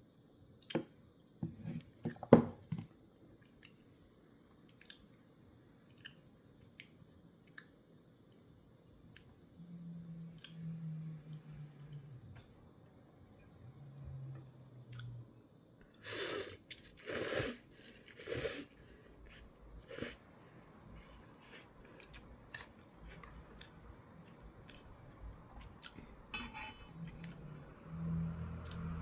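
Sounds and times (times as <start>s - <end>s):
slurping noodles: 16.0s - 20.2s
person chewing: 16.1s - 24.9s, 25.6s - 26.1s.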